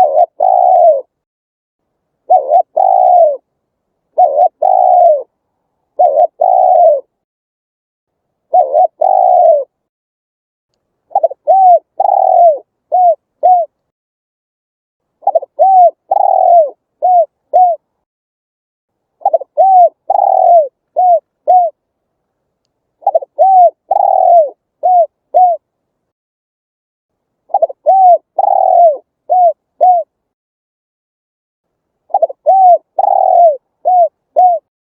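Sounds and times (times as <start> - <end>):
dove cooing: 0.0 - 1.2, 2.2 - 3.5, 4.1 - 5.3, 5.9 - 7.2, 8.5 - 9.8, 11.1 - 13.8, 15.2 - 17.9, 19.2 - 21.8, 23.0 - 25.6, 27.5 - 30.1, 32.1 - 34.7.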